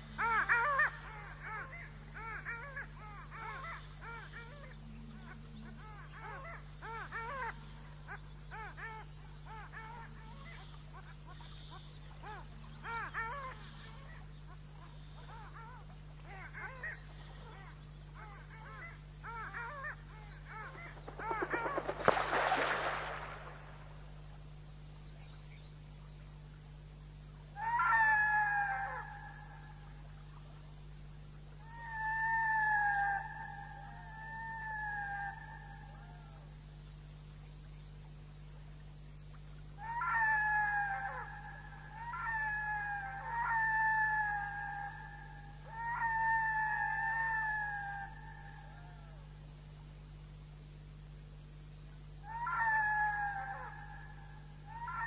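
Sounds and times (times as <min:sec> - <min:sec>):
flock of birds calling: 0:00.0 - 0:23.9, 0:27.6 - 0:29.7, 0:39.8 - 0:48.6, 0:52.2 - 0:55.0
sharp crack: 0:21.1 - 0:24.0.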